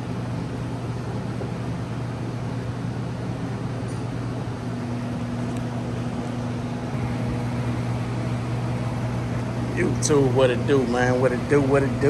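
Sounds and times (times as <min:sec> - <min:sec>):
vehicle running noise: 0:04.5 - 0:12.0.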